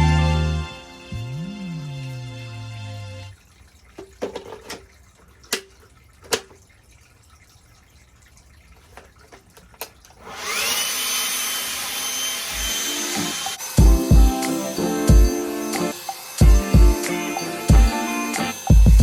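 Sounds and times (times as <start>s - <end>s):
power tool motor whining: 10.2s - 19.0s.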